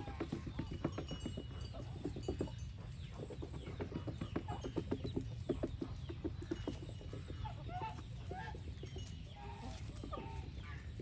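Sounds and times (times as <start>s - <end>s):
geese calling: 6.5s - 11.0s.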